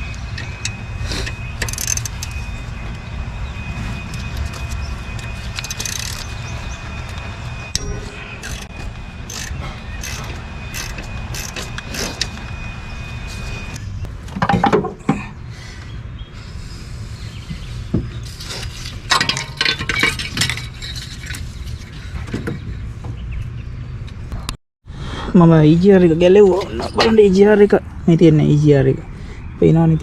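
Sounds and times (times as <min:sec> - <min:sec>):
tools and metal parts clinking: 0:00.3 - 0:02.5, 0:04.1 - 0:12.3, 0:18.2 - 0:21.9.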